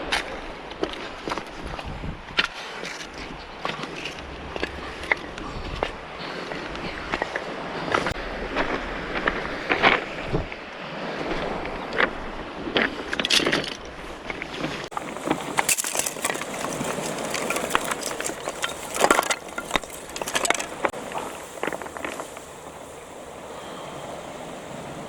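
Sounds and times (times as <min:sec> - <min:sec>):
sea surf: 0:00.0 - 0:25.0
wind: 0:00.0 - 0:25.0
stones and gear crunching: 0:14.9 - 0:20.9.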